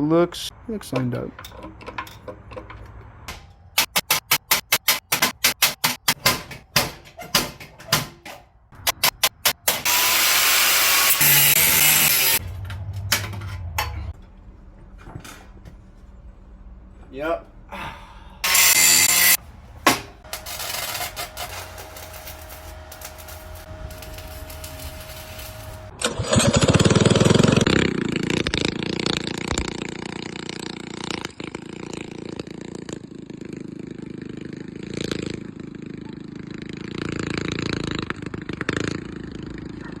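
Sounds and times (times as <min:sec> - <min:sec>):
minibike engine revving: 0:08.8 - 0:14.1, 0:20.2 - 0:40.0
loud rattling burst: 0:20.2 - 0:39.7.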